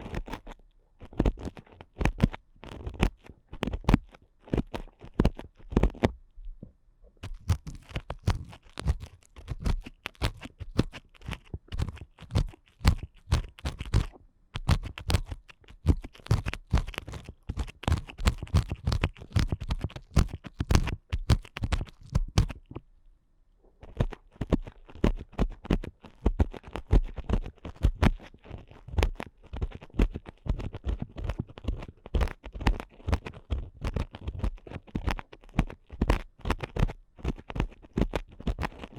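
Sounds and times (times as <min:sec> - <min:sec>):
earpicks scratching microphone: 0:07.2 - 0:22.8.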